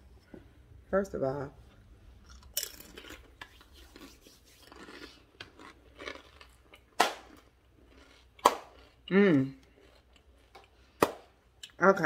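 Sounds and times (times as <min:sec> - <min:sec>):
crunching tortilla chip: 0:02.3 - 0:10.6.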